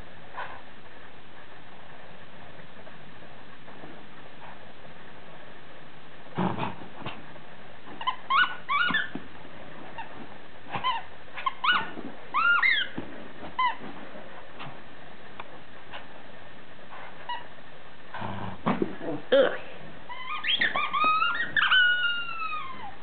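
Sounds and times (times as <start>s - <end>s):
rustling thump: 6.3s - 8.2s, 8.8s - 16.3s, 18.6s - 20.0s
dog toy squeaking: 8.0s - 9.2s, 10.7s - 13.0s, 13.6s - 13.8s, 20.1s - 23.0s.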